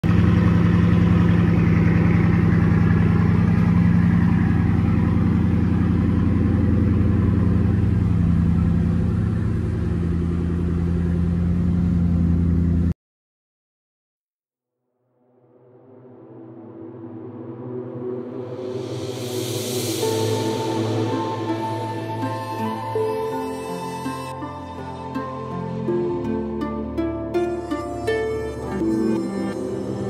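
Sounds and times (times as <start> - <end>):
car engine idling: 0.0 - 12.9.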